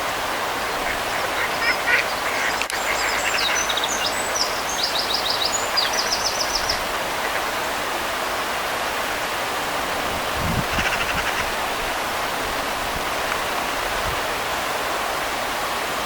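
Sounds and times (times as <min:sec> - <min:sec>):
birds chirping: 0:00.7 - 0:07.5.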